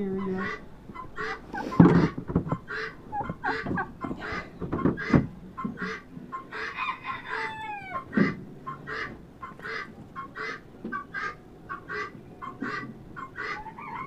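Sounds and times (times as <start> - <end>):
chickens clucking: 0.0 - 14.0
poultry short calls: 0.3 - 5.2, 5.8 - 14.0
dull knocks: 1.8 - 2.7
rooster crowing: 6.6 - 8.1, 13.6 - 14.0.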